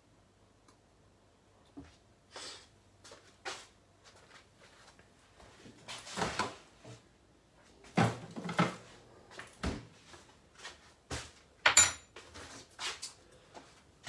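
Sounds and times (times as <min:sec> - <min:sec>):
sharp ringing clink: 0:11.7 - 0:12.1
utensils clattering on counter: 0:11.7 - 0:12.1.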